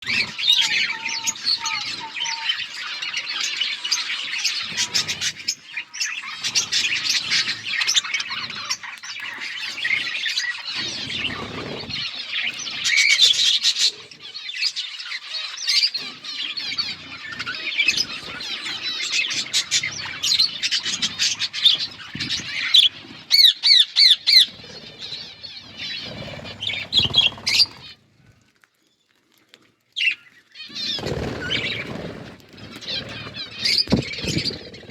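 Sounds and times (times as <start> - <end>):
budgerigars chattering and chirping: 0.0 - 28.0, 30.0 - 34.9.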